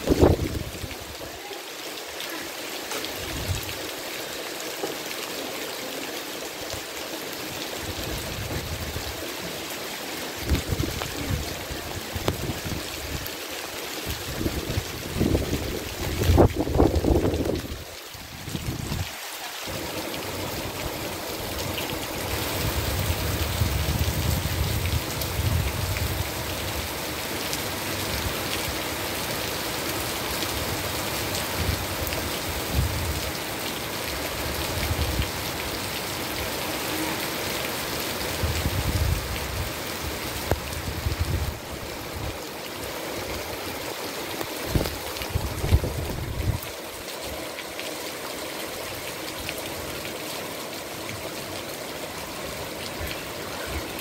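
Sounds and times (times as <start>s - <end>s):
heavy rain on leaves: 0.0s - 54.0s
wind buffeting microphone: 14.3s - 17.8s, 22.6s - 26.3s, 44.7s - 46.7s.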